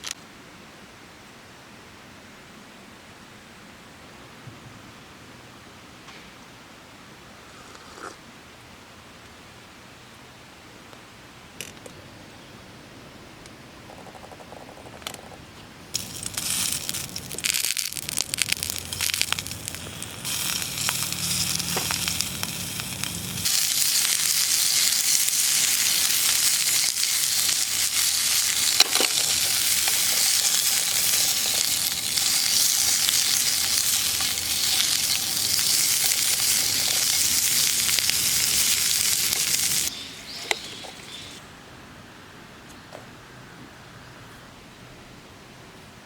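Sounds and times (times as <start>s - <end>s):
crackles and pops of frying: 15.9s - 41.4s
food sizzling in a pan: 16.0s - 41.4s.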